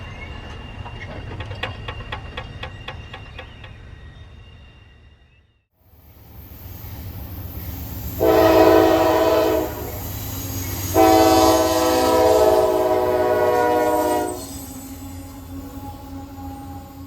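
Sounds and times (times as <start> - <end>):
rumble of passing train: 0.0 - 17.0
locomotive air horn: 8.2 - 10.2, 10.8 - 17.0.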